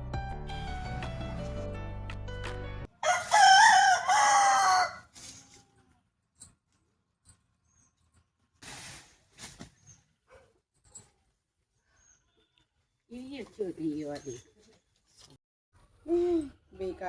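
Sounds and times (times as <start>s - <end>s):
background music: 0.0s - 2.9s
rooster crowing: 3.0s - 5.1s.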